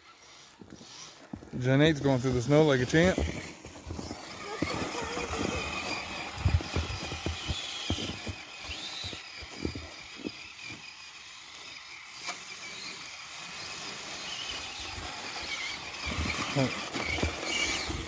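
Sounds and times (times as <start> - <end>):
small electric motor whine: 0.0 - 18.0.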